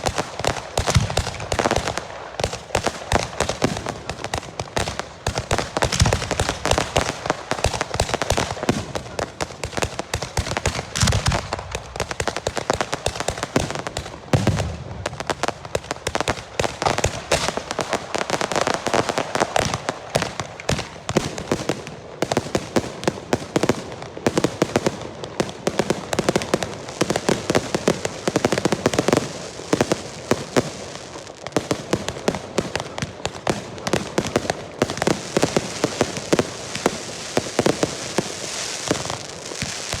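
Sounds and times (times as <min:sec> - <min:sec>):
fireworks crackling bangs: 0:00.0 - 0:40.0
deep firework booms: 0:10.4 - 0:12.4, 0:13.6 - 0:15.8.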